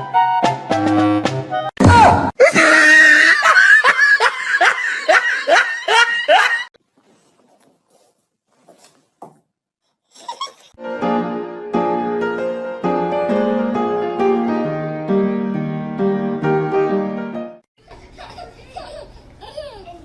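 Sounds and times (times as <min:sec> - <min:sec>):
hearty laughter: 0:02.4 - 0:06.7.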